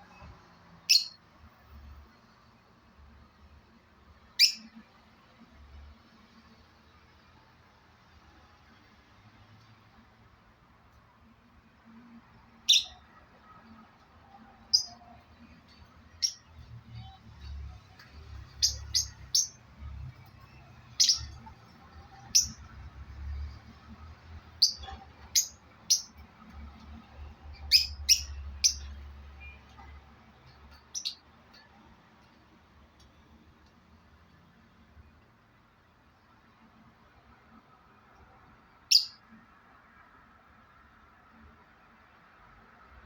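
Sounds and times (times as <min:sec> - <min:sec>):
parrot chirping: 0:00.8 - 0:01.2, 0:04.3 - 0:04.8, 0:12.6 - 0:13.1, 0:14.6 - 0:15.0, 0:15.7 - 0:17.6, 0:18.3 - 0:22.8, 0:24.5 - 0:26.2, 0:27.5 - 0:29.6, 0:30.5 - 0:31.7, 0:38.8 - 0:39.3.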